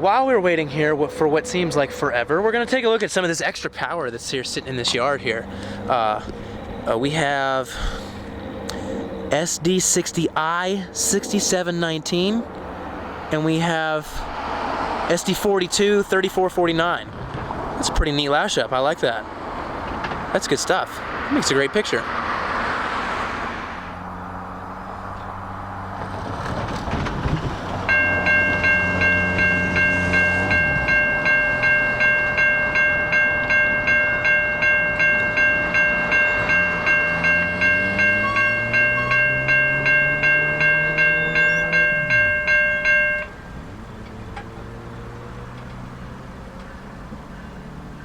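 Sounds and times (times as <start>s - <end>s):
diesel locomotive engines: 0.0s - 21.7s, 26.6s - 48.0s
railroad bell ringing: 27.9s - 43.6s.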